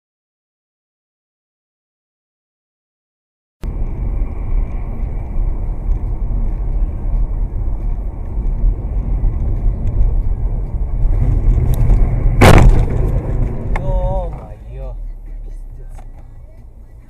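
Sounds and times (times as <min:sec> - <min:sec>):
car road and engine rumble: 0:03.6 - 0:17.0.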